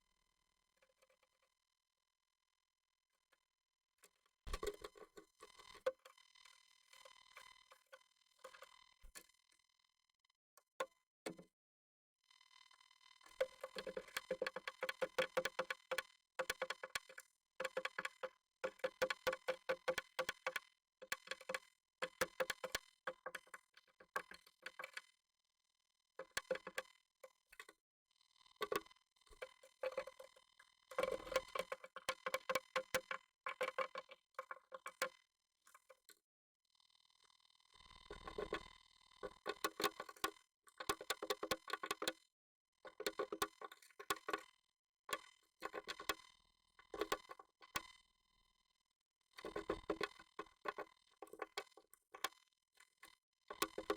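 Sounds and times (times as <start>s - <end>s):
bird tapping on wood: 13.4s - 25.0s, 30.9s - 35.1s, 39.4s - 42.2s.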